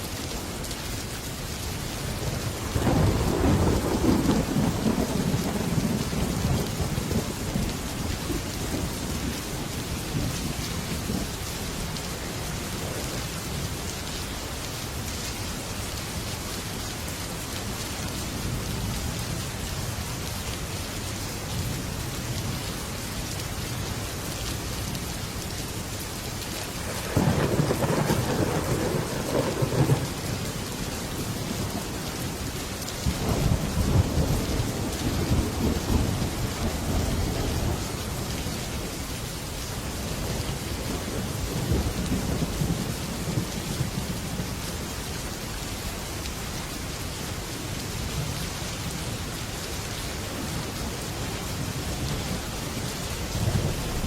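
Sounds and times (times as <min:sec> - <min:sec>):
heavy rain on a metal roof: 0:00.0 - 0:54.0
thunder rumbling: 0:02.5 - 0:11.3, 0:26.8 - 0:38.9, 0:51.5 - 0:54.0.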